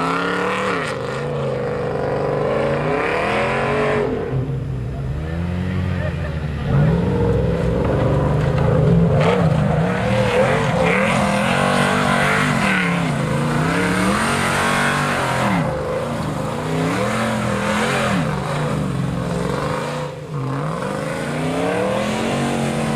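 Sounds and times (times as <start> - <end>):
car engine revving: 0.0 - 22.9.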